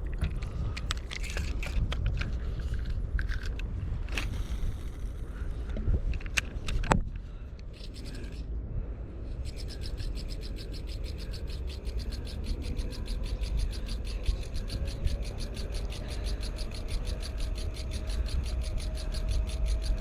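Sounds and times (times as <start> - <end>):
steady low rumble: 0.0 - 20.0
sharp clicks and scrapes: 0.1 - 8.5, 9.4 - 20.0
rapid ticks: 7.6 - 8.5, 9.4 - 20.0.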